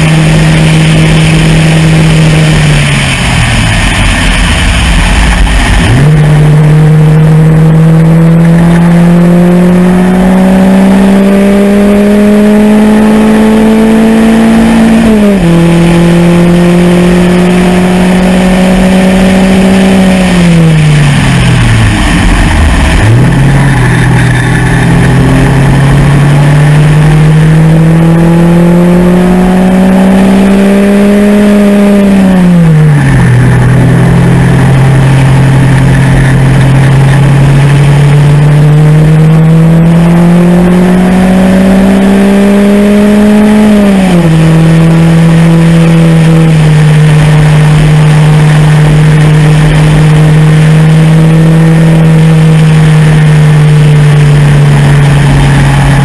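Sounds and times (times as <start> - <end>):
wind rush: 0.0 - 8.3, 18.5 - 28.4
race car engine accelerating: 0.0 - 56.0.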